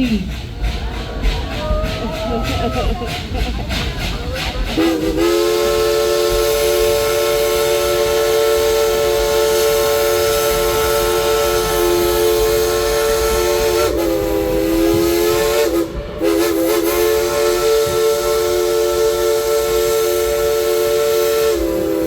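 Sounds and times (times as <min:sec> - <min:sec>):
steam locomotive whistle: 0:04.5 - 0:22.0.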